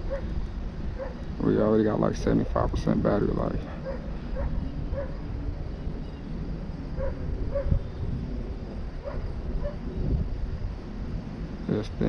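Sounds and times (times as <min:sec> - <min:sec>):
strong wind buffeting microphone: 0:00.0 - 0:12.0
dog barking: 0:00.1 - 0:00.3, 0:01.0 - 0:01.2, 0:03.8 - 0:05.2, 0:07.0 - 0:07.8, 0:09.0 - 0:09.8.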